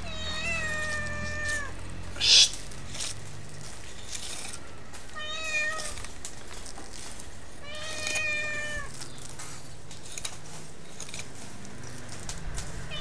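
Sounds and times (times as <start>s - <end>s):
cat meowing: 0.0s - 2.6s, 5.1s - 6.0s, 7.6s - 8.9s.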